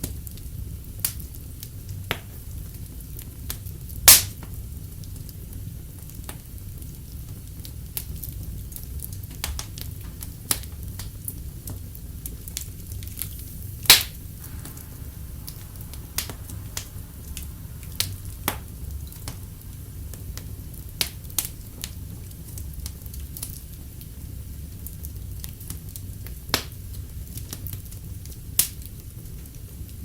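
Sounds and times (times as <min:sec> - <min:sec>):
wood fire crackling and popping: 0:00.0 - 0:30.0
low steady rumble: 0:06.7 - 0:30.0.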